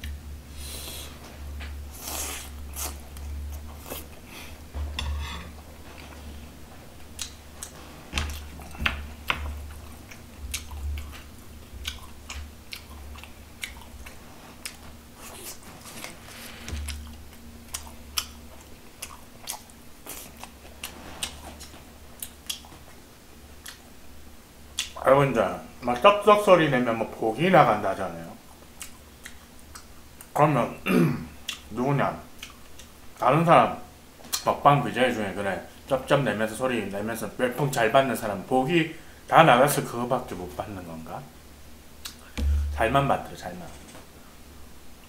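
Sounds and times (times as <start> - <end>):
man chewing food: 0.0 - 25.0, 28.4 - 30.4, 31.3 - 31.7, 32.3 - 33.2, 42.0 - 42.8.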